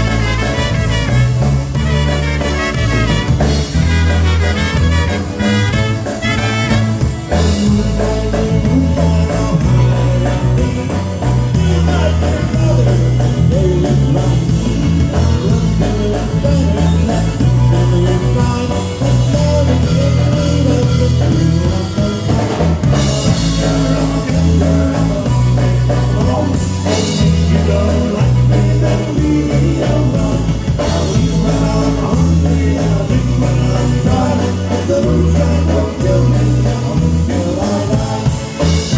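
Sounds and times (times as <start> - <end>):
drum kit beat: 0.0 - 38.9
polka band playing: 0.0 - 38.9
pulsing bass line: 0.0 - 38.9.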